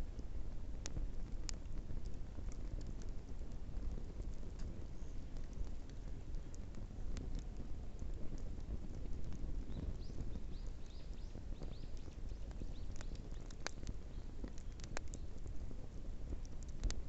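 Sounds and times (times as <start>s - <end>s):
bonfire rushing: 0.0s - 17.0s
fire crackling and popping: 0.0s - 17.0s.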